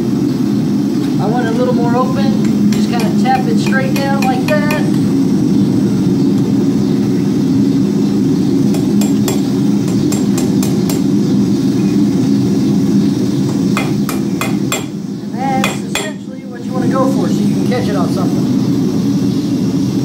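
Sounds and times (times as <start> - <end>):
steady low drone: 0.0 - 20.0
hammer striking steel on anvil: 2.4 - 5.1, 8.7 - 11.1, 13.8 - 15.0, 15.6 - 16.2.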